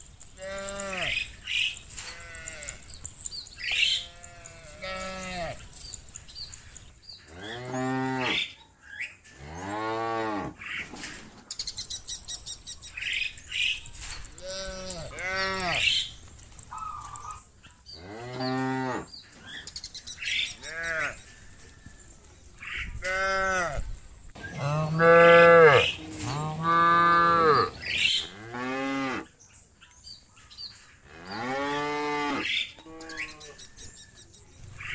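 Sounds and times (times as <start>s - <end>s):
faint bird chirping: 0.0s - 34.9s
cows mooing: 0.4s - 1.3s, 2.0s - 3.0s, 3.7s - 5.6s, 7.3s - 8.6s, 14.4s - 16.0s, 18.0s - 19.1s, 20.6s - 21.2s, 23.0s - 23.8s, 24.5s - 29.3s, 31.1s - 33.6s.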